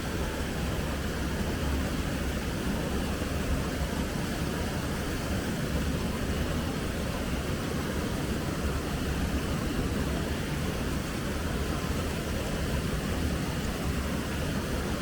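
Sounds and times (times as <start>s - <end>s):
river flowing: 0.0s - 15.0s.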